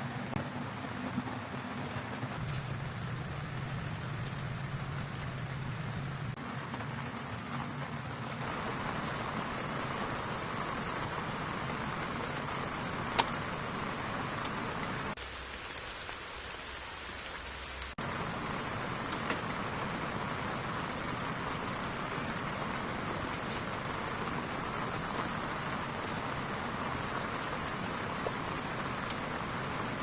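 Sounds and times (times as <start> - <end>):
steady rain falling: 0.0 - 30.0
sharp single raindrops: 8.4 - 30.0.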